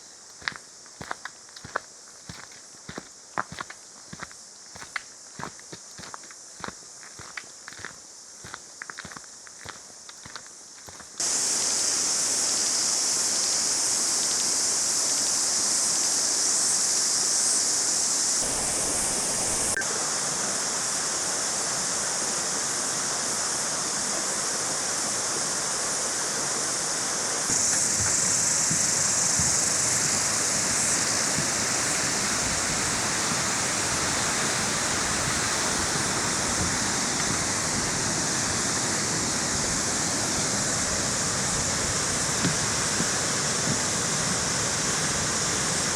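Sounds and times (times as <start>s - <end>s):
waterfall rushing: 18.4s - 20.2s.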